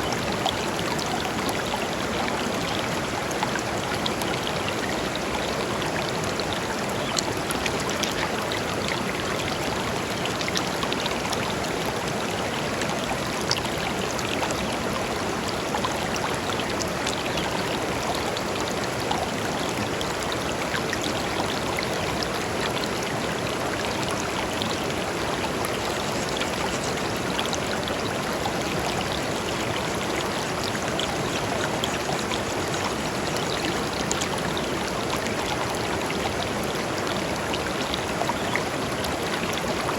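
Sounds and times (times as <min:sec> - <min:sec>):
river flowing over stones: 0:00.0 - 0:39.9.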